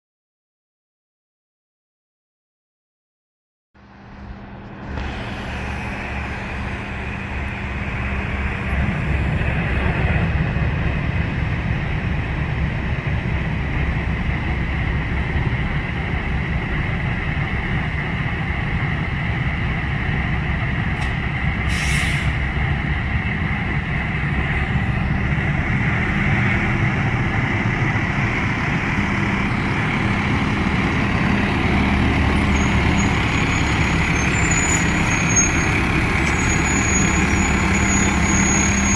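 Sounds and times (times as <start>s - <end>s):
diesel engine running: 3.8s - 38.9s
air brakes hissing: 4.9s - 7.2s, 21.0s - 22.6s, 30.8s - 38.9s.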